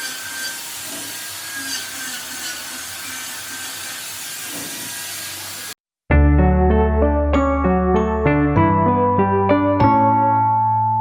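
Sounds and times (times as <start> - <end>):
power tool running on wood: 0.0 - 5.8.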